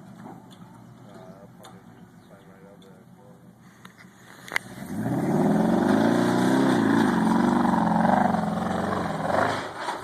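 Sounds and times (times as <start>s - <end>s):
truck engine under load: 4.5s - 10.0s.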